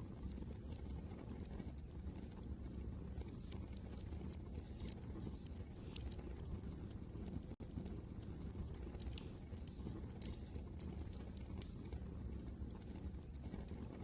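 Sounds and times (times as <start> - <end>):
low rumble of wind: 0.0 - 14.0
wood fire crackling: 0.0 - 14.0.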